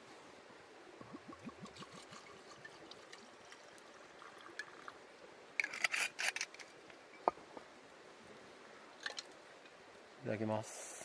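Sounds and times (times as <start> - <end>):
whisky pouring into cup: 1.0 - 5.0.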